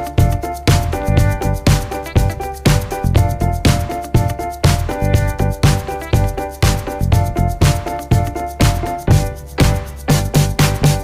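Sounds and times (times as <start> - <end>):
upbeat electronic funk music: 0.0 - 11.0.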